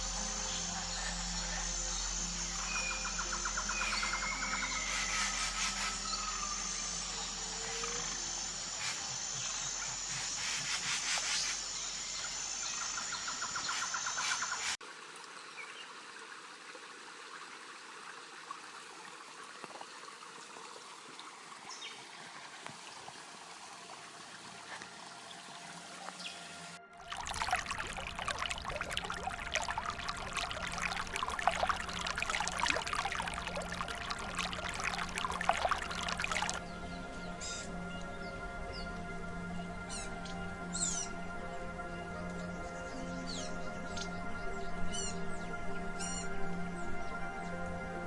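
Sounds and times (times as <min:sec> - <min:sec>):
high insect drone: 0:00.0 - 0:14.8
pulsed trilling frog calls: 0:00.0 - 0:14.8, 0:27.1 - 0:36.6
hissy forest ambience: 0:00.0 - 0:16.5, 0:27.1 - 0:36.6.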